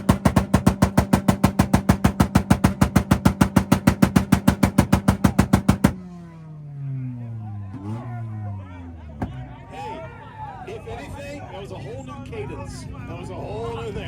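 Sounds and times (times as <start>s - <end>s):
launch limiter bangs: 0.0s - 7.2s
engine drone: 0.0s - 14.0s.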